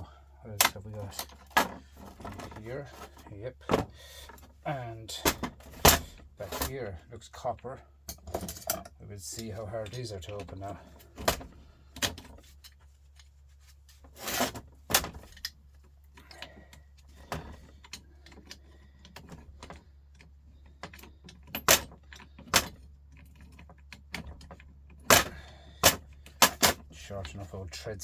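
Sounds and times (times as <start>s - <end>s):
low steady hum: 0.0s - 28.0s
metal tools clinking and knocking: 8.0s - 11.4s.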